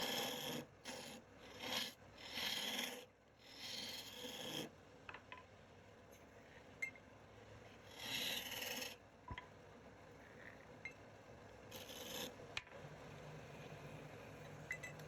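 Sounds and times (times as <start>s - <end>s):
tool rasping against wood: 0.0s - 4.7s.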